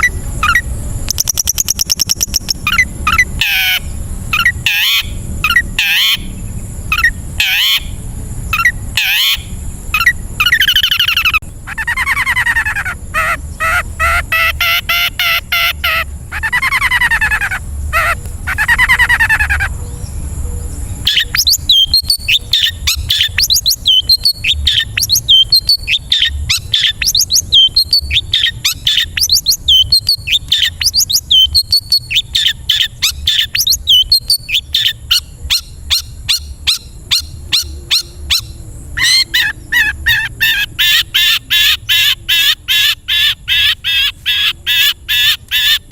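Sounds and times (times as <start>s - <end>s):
harsh buzzy rasping calls: 0.0s - 19.8s, 21.1s - 45.9s
bird down-slurred calls: 0.0s - 20.0s, 21.0s - 45.9s
fast bird chirps: 0.0s - 20.0s, 21.0s - 45.9s.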